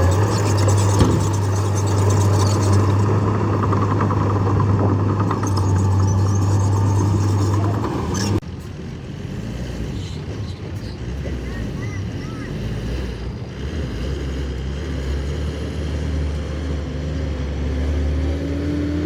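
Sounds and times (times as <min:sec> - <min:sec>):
mechanical clatter: 0:00.0 - 0:08.4
diesel engine running under load: 0:00.0 - 0:19.0.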